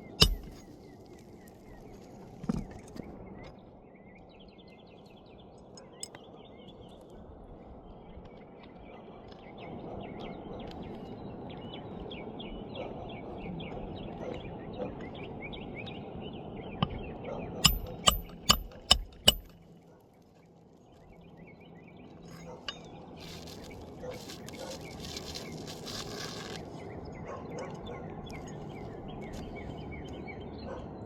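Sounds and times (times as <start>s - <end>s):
birds chirping: 0.0s - 2.3s, 7.8s - 19.5s, 26.7s - 31.0s
steady outdoor hum: 0.0s - 31.0s
hammer striking roof: 17.6s - 19.5s.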